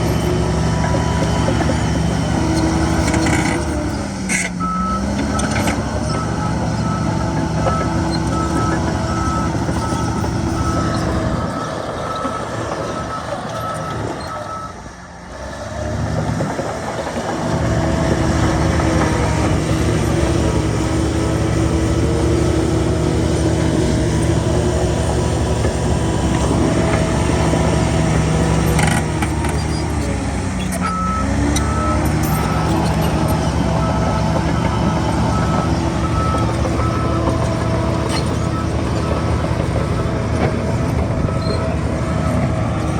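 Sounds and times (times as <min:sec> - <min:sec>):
heavy diesel machinery running: 0:00.0 - 0:42.9
reversing alarm beeping: 0:04.6 - 0:14.9, 0:30.8 - 0:42.9.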